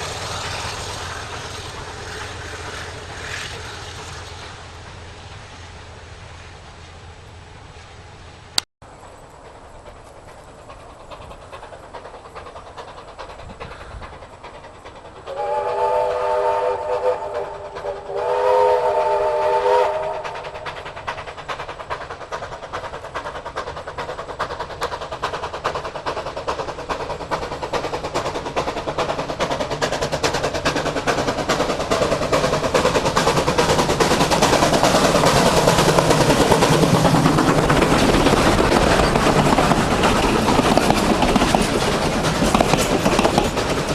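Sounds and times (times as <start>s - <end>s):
train clatter and rumble: 0.0s - 43.9s
steam locomotive whistle blasts: 15.3s - 20.6s.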